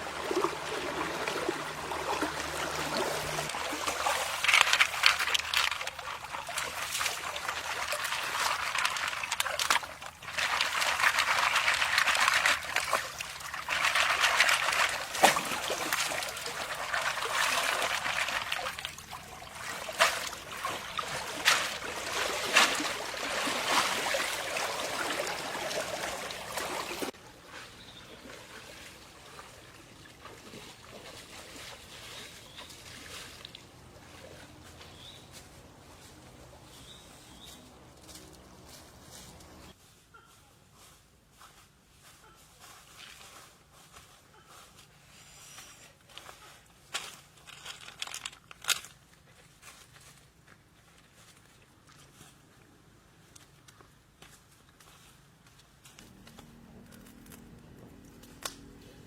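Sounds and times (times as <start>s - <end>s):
water trickling and splashing: 0.0s - 39.8s.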